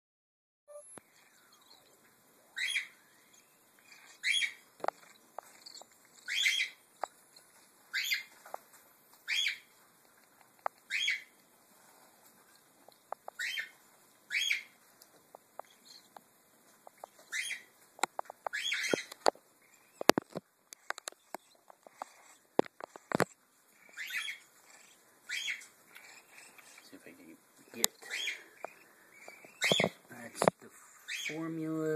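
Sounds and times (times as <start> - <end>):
cockatiel chicks begging calls: 2.6 - 3.2, 3.8 - 6.8, 9.3 - 9.7, 10.9 - 11.3, 13.4 - 14.7, 17.1 - 17.7, 18.5 - 20.0, 23.2 - 26.9, 27.7 - 30.0
small clicks and taps: 10.0 - 11.5, 12.5 - 13.4, 17.9 - 23.4.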